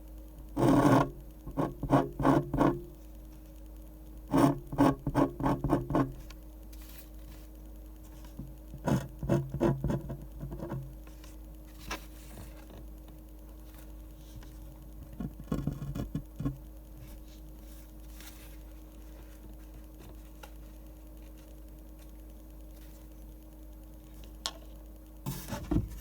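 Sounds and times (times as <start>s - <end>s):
faint steady hum: 0.0s - 26.0s
pen scratching on paper: 0.6s - 2.8s, 4.3s - 6.2s.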